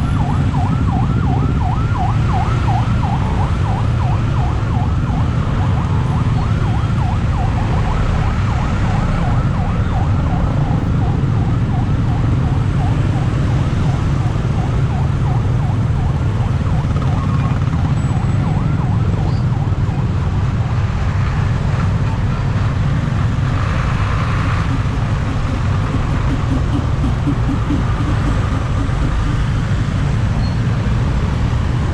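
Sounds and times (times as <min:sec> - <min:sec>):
engines rumbling: 0:00.0 - 0:31.9
level crossing alarm warbling: 0:24.4 - 0:30.0.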